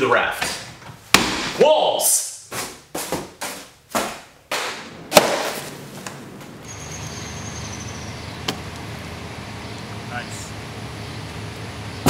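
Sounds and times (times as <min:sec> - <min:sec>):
faint high whine: 0:05.0 - 0:12.0.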